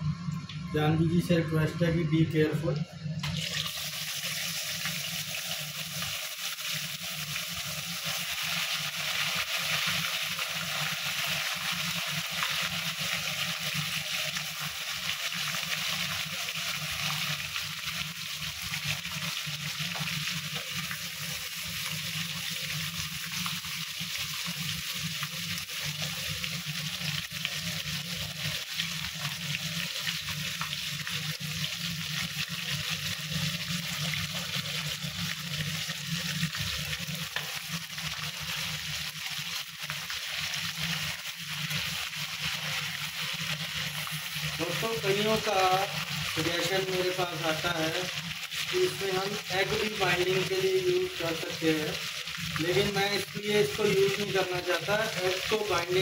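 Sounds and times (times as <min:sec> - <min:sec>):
chicken sizzling in a pan: 0:03.2 - 0:56.0.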